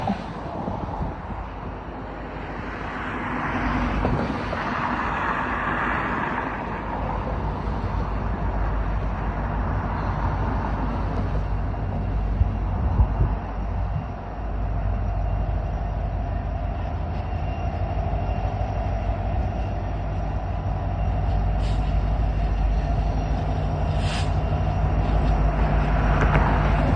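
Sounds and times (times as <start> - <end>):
diesel locomotives rumbling: 0.0 - 26.9.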